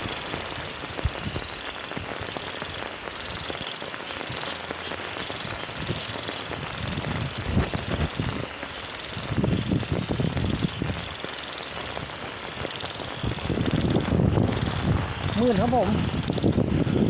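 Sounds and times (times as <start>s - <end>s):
steady rain hiss: 0.0s - 17.0s
low bumps: 12.1s - 17.0s.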